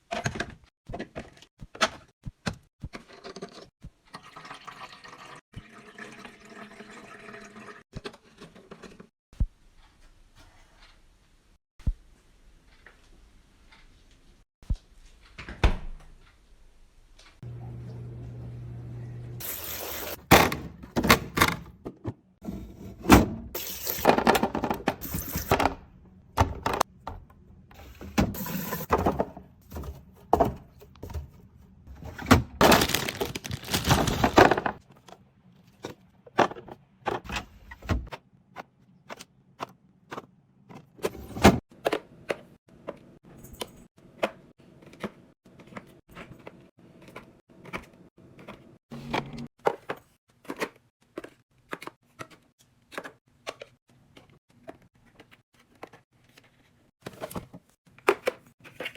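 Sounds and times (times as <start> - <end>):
rustling: 32.7 - 34.5.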